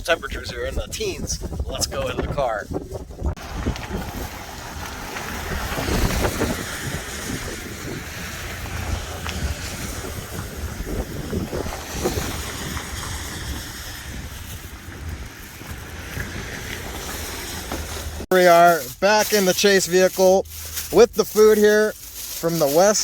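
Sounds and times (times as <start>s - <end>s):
wind buffeting microphone: 0.0s - 18.3s.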